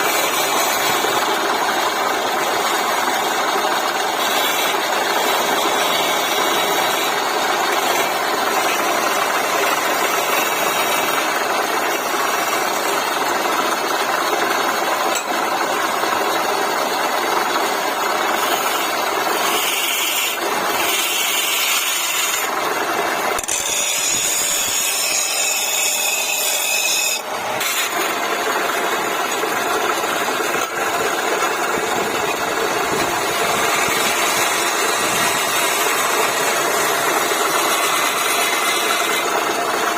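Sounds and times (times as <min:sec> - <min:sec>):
tool scraping spinning wood: 0:00.0 - 0:39.9
wood lathe running: 0:00.0 - 0:39.9.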